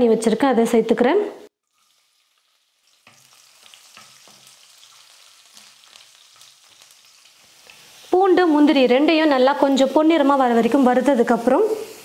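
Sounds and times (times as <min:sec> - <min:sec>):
food frying in hot oil: 0:01.6 - 0:12.0
wooden spatula stirring: 0:01.7 - 0:04.6.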